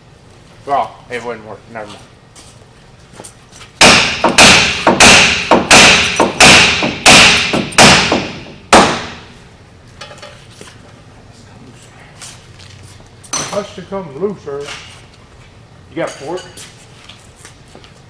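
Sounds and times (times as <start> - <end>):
hammer striking metal: 3.8 - 9.3.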